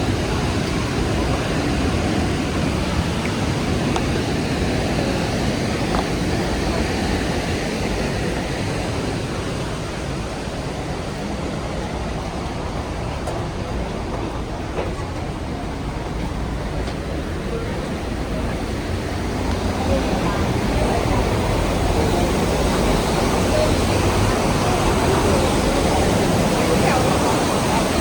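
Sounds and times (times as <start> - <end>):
waterfall rushing: 18.8 - 28.0.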